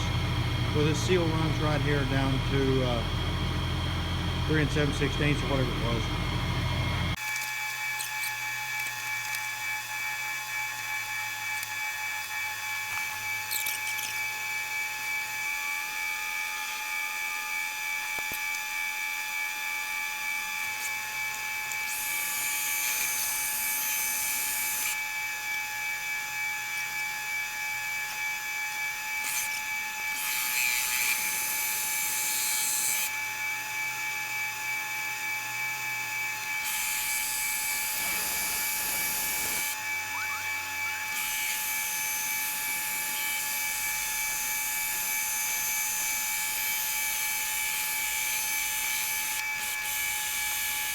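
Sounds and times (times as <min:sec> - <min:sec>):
hissing cutting noise: 0:00.0 - 0:07.2, 0:36.6 - 0:45.9
metal lathe whining: 0:00.0 - 0:07.2, 0:20.6 - 0:25.1, 0:29.0 - 0:33.4, 0:35.1 - 0:50.9.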